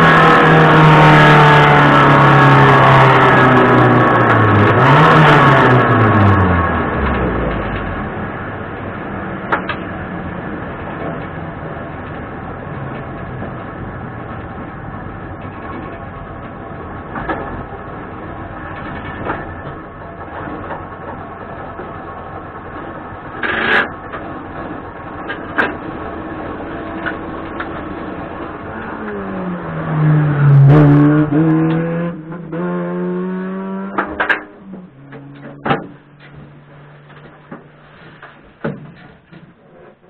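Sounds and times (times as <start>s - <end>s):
race car engine idling and revving: 0.0s - 40.0s.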